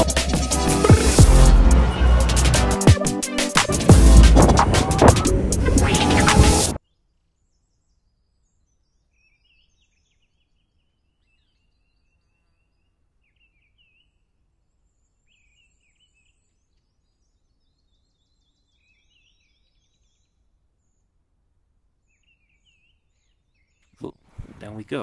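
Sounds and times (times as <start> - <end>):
birds chirping and warbling: 4.3 - 21.2, 22.0 - 24.0.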